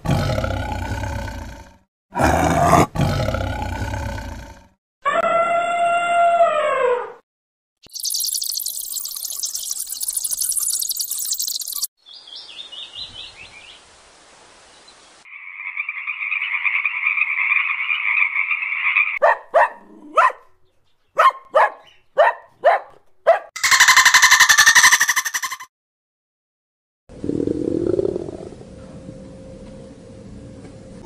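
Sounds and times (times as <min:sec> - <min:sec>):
small bird chirping: 0:07.8 - 0:13.8
frog trilling and croaking: 0:07.9 - 0:11.9, 0:15.3 - 0:19.2, 0:23.6 - 0:25.7.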